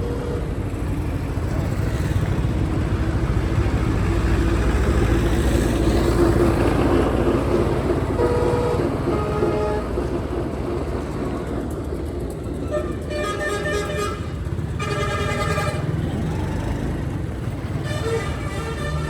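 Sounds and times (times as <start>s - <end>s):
vehicle horn honking: 8.2s - 9.9s, 12.6s - 16.0s, 17.8s - 19.0s.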